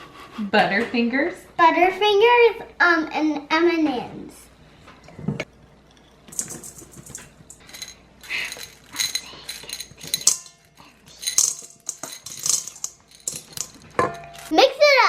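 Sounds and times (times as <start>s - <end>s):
candy pieces clattering into bowl: 6.3s - 14.5s.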